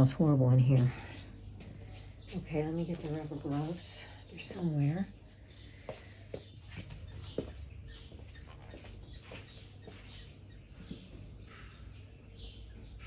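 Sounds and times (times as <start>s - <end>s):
bird chirping high and thin: 6.6s - 13.0s.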